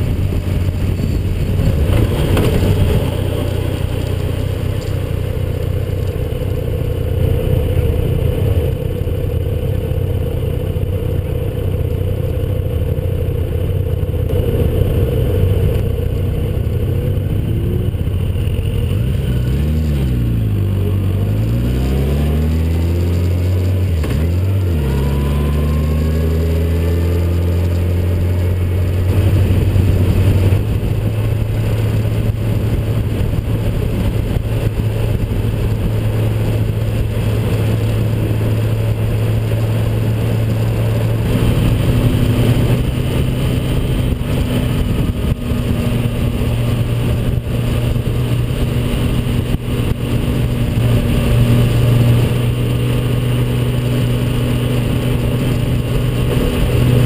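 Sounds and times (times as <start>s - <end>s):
wind noise on microphone: 0.0s - 3.8s, 22.5s - 57.0s
motorcycle engine running: 0.0s - 57.0s.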